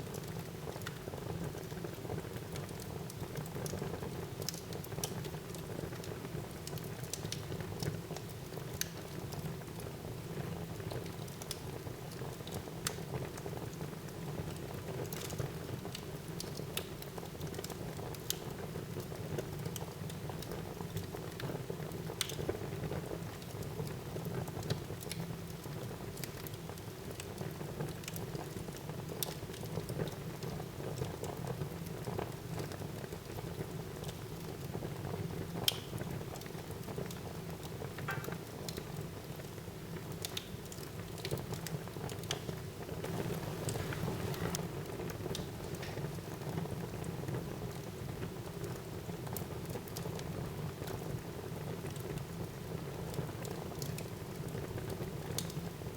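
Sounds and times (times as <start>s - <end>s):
burning wood crackling and popping: 10.7s - 55.9s
fire flames rushing: 43.1s - 44.8s.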